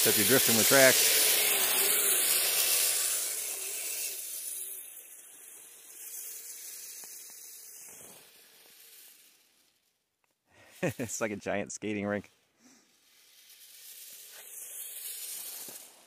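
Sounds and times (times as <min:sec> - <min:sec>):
electric motor whine: 0:00.0 - 0:09.4
tracks sliding on icy snow: 0:00.0 - 0:09.9, 0:10.6 - 0:16.0.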